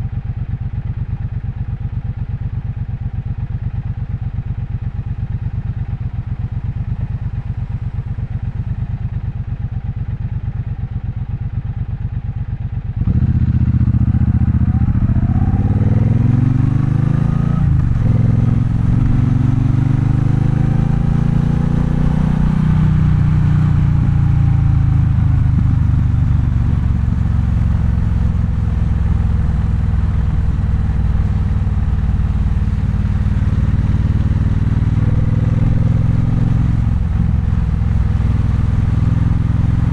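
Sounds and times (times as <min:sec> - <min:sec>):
motorcycle engine idling: 0:00.0 - 0:16.4, 0:23.0 - 0:35.3
motorcycle accelerating: 0:12.9 - 0:39.9.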